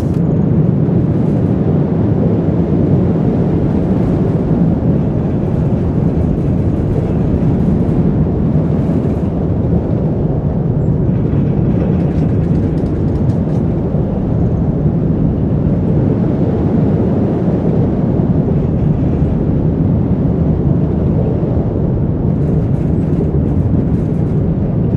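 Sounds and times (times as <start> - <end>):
roller coaster rumbling on track: 0.0 - 24.9.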